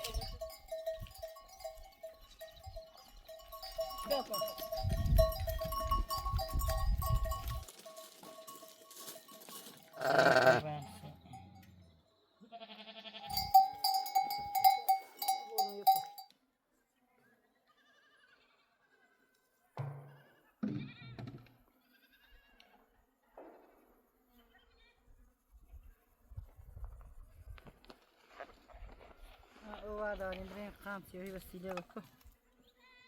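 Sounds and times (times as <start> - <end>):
neck bell clinking: 0.0 - 11.9, 13.3 - 16.3
sheep bleating: 10.0 - 11.4, 12.4 - 13.6, 17.7 - 18.9, 21.8 - 22.7.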